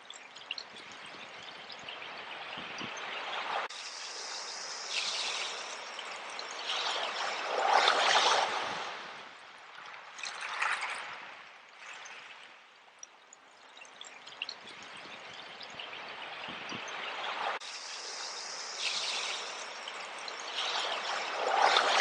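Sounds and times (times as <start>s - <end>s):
sea waves washing in: 2.0s - 11.3s, 15.9s - 22.0s.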